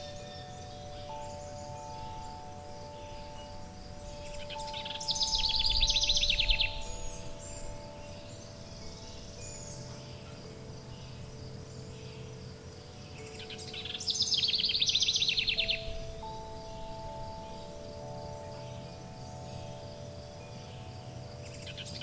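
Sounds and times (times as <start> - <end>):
songbird trilling: 0.0 - 22.0
wind chimes: 0.0 - 22.0.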